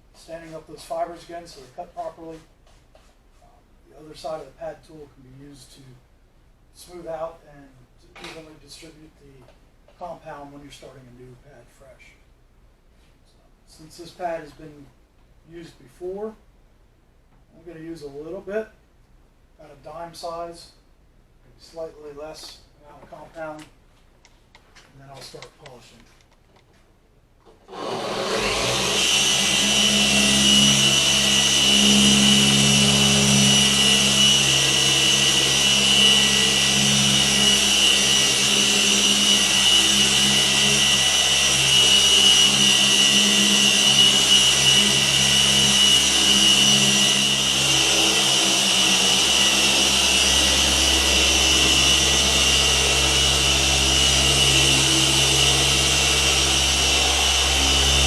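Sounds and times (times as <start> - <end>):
orbital polisher running: 27.7 - 58.0.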